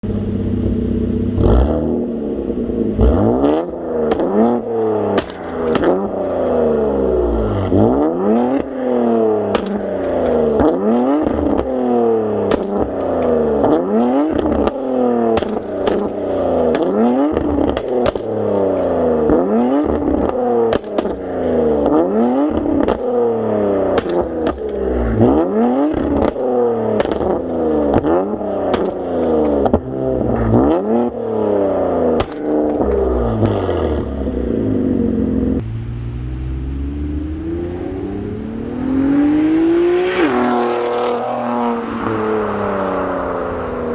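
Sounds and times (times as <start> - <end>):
car engine free-revving: 0.1 - 42.7
exhaust pops and crackles: 3.0 - 34.7.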